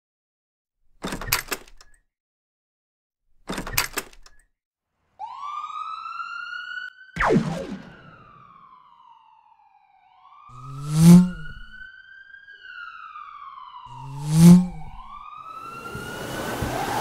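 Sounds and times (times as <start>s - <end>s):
police siren wailing: 5.2s - 17.0s
loud sweeping sounds: 10.6s - 11.7s, 14.0s - 14.9s.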